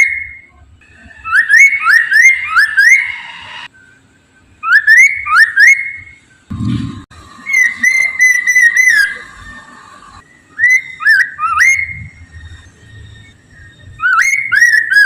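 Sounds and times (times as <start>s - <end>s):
bird singing clear whistles: 0.0s - 0.5s, 1.2s - 4.0s, 4.6s - 6.3s, 7.4s - 9.2s, 10.3s - 15.0s.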